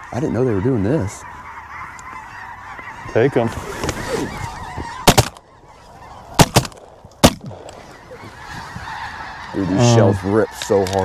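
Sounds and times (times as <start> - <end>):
geese honking: 0.0 - 11.0
shotgun shots: 5.0 - 5.4, 6.4 - 7.7.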